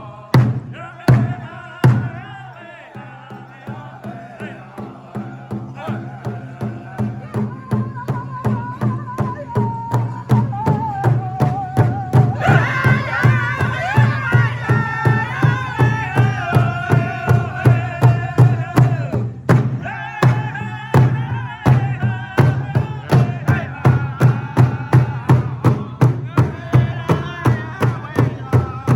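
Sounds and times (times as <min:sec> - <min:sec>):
men singing high-pitched: 0:00.0 - 0:28.9
large drum beating: 0:00.2 - 0:28.9.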